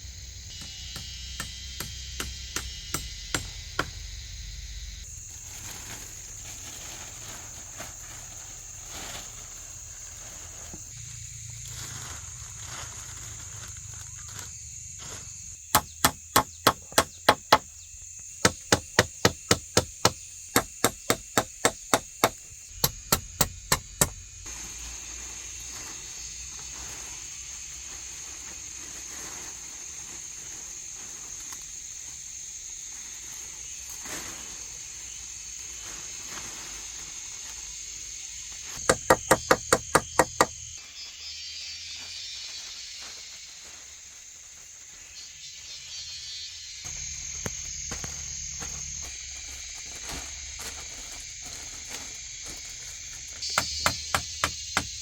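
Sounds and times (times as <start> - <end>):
insect drone: 0.0 - 55.0
blade chopping wood: 0.6 - 4.0, 15.7 - 17.7, 18.4 - 24.2, 38.8 - 40.6, 53.4 - 55.0.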